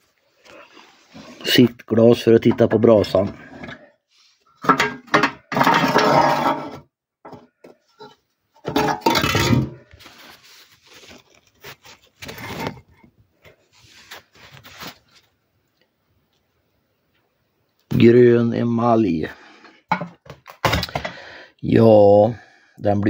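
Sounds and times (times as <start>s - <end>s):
metal clatter: 4.6s - 6.8s, 8.6s - 9.8s.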